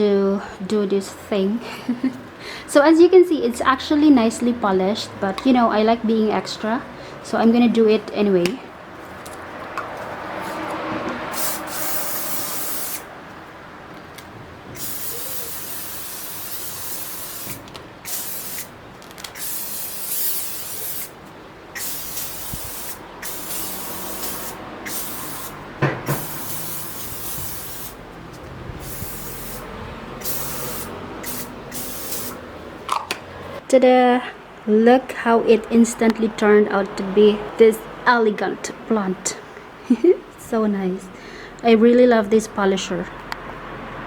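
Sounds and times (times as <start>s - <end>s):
aerosol can spraying: 11.3s - 13.1s, 14.8s - 21.2s, 21.8s - 28.0s, 28.8s - 32.4s.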